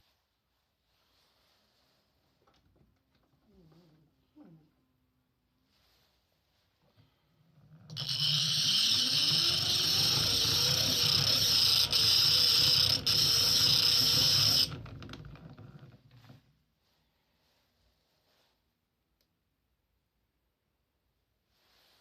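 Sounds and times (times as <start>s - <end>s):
hand-cranked grinder gears rumbling: 7.5s - 16.0s
metal grinding on stone: 7.8s - 14.9s.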